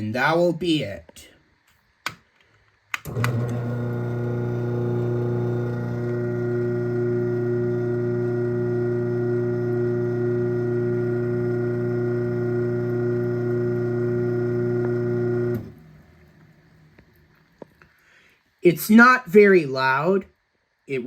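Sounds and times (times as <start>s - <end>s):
garage door opener motor hum: 3.0s - 16.9s.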